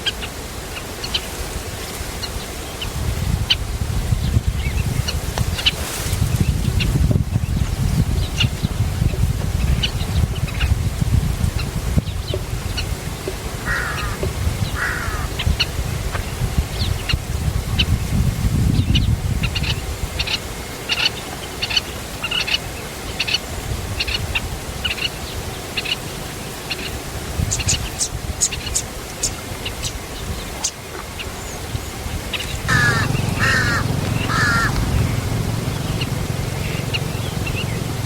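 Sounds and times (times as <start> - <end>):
wind rumbling on microphone: 0.0 - 21.4, 23.1 - 38.0
birds rasping calls: 11.6 - 16.3, 32.3 - 38.0
birds high chirps: 24.0 - 38.0.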